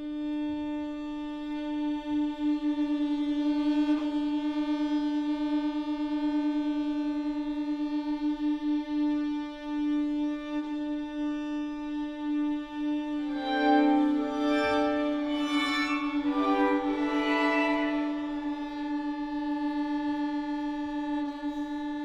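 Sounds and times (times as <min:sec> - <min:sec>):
strings holding a sustained note: 0:13.0 - 0:22.0.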